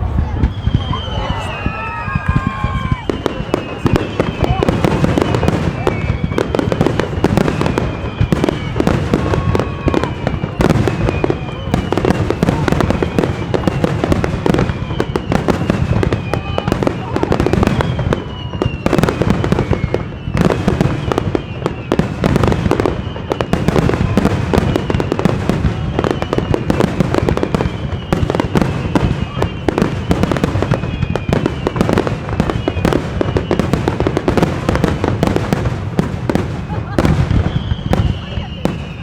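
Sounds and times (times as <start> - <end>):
fireworks bursts and crackling: 0.0 - 39.0
fireworks whistles gliding down: 0.0 - 39.0.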